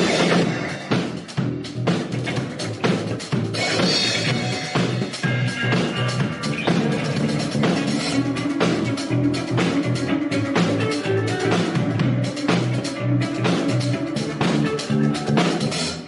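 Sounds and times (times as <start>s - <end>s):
drum kit beat: 0.0s - 16.0s
rock band playing: 0.0s - 16.0s.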